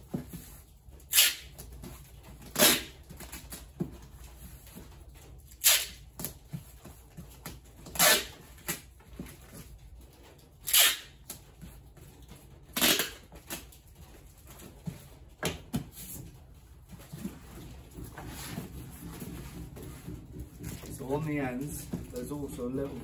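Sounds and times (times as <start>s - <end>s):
packing tape pulled off roll: 1.0s - 3.6s, 5.5s - 6.4s, 7.8s - 8.9s, 10.6s - 11.5s, 12.7s - 13.8s.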